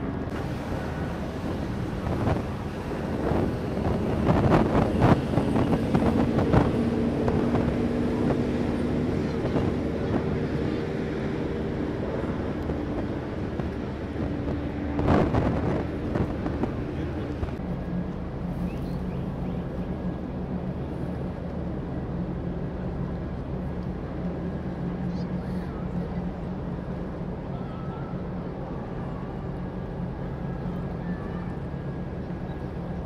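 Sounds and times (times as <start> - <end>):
ship horns: 0.0 - 17.5
wind on microphone: 0.0 - 17.7
low engine rumble: 0.0 - 33.0.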